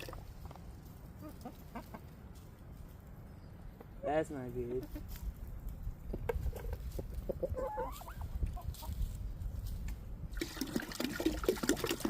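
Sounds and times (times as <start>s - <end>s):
hens clucking: 0.0s - 2.6s, 4.6s - 5.2s, 6.1s - 9.0s.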